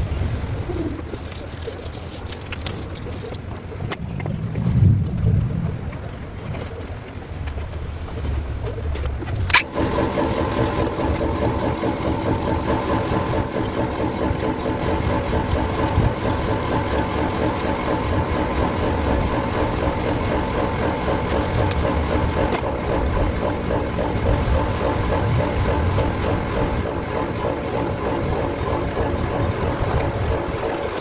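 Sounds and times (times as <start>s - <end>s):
car engine starting and idling: 9.2s - 31.0s.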